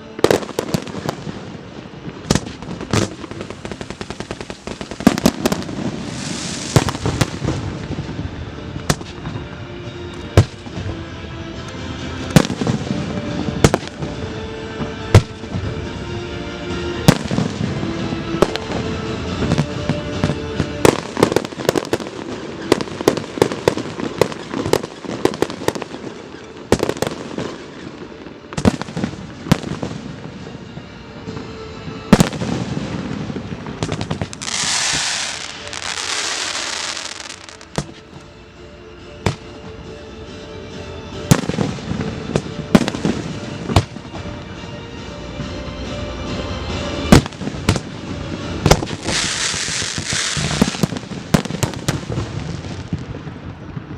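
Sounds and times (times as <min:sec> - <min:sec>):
fireworks crackle: 0:00.0 - 0:09.5, 0:11.8 - 0:14.2, 0:17.0 - 0:38.1, 0:46.5 - 0:53.9
music playing: 0:00.0 - 0:53.9
fireworks bangs: 0:00.1 - 0:09.4, 0:12.2 - 0:14.2, 0:17.0 - 0:28.0, 0:28.6 - 0:38.1, 0:47.0 - 0:53.9.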